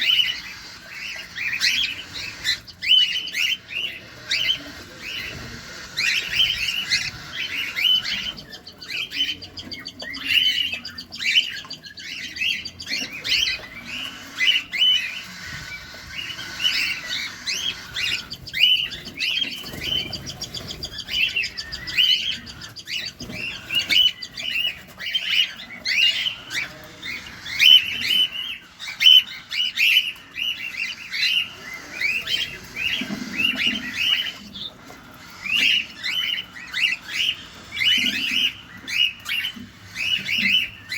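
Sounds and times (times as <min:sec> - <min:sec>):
cockatiels chirping: 0:00.0 - 0:40.9.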